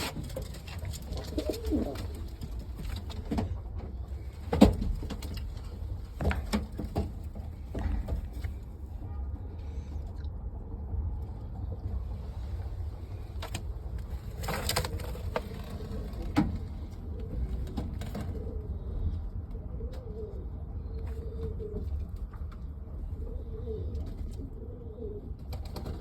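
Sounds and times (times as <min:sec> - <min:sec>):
pigeons cooing: 0:00.0 - 0:02.9, 0:14.3 - 0:22.1, 0:23.0 - 0:26.0.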